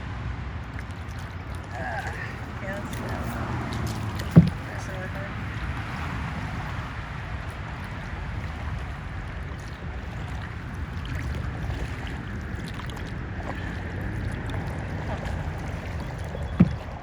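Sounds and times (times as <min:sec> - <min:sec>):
low wind rumble: 0:00.0 - 0:17.0
water washing around kayak: 0:00.0 - 0:17.0.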